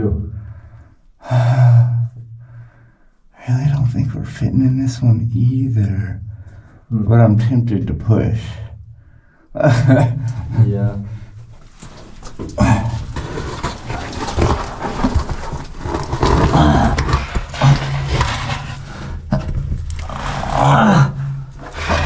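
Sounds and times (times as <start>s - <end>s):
clothes scraping against rock: 11.6s - 20.7s
man grunting and straining: 16.3s - 18.1s, 20.0s - 22.0s.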